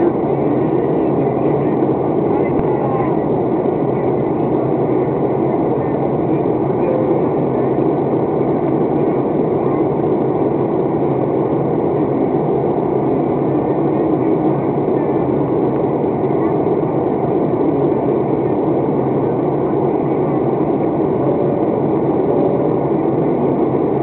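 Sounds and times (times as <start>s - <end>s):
airliner cabin engine noise: 0.0s - 24.0s.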